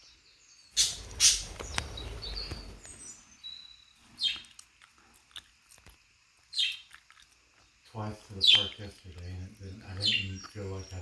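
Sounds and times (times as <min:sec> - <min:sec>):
budgerigars chirping: 0:00.7 - 0:04.5, 0:06.5 - 0:06.9, 0:08.3 - 0:11.0.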